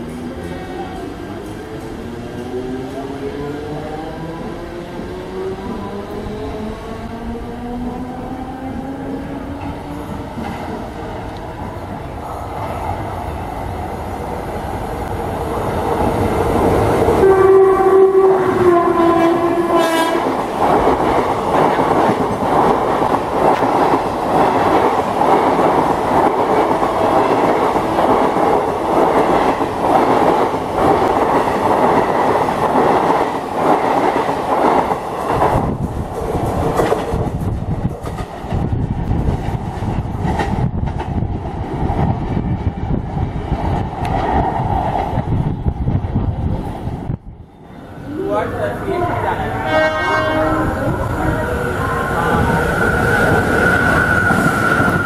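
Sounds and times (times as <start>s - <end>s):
train wheels rushing on rail: 0.0s - 55.0s
locomotive horn: 17.2s - 20.4s, 49.0s - 51.4s.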